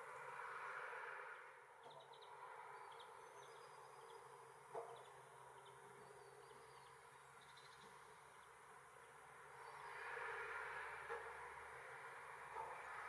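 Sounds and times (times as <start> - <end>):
small birds chirping: 1.8 - 10.0.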